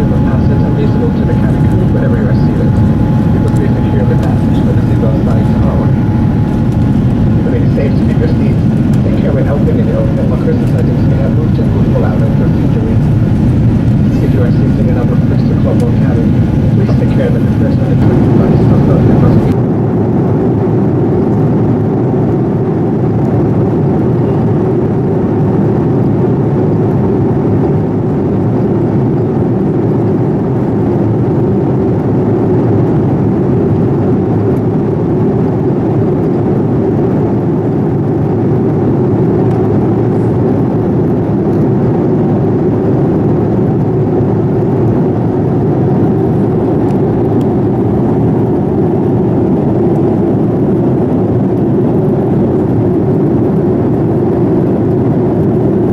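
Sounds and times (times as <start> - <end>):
airliner cabin engine rush: 0.0 - 20.1, 33.3 - 55.9.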